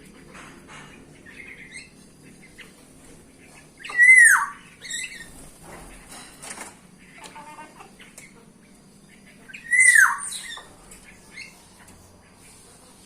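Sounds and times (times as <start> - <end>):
faint bird chirps: 0.0 - 6.2, 6.9 - 13.0
bulbul calling: 3.4 - 5.4, 7.8 - 11.6.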